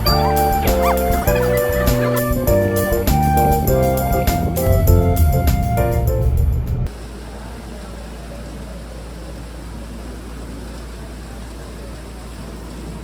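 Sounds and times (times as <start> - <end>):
organ-like keyboard music: 0.0 - 6.3.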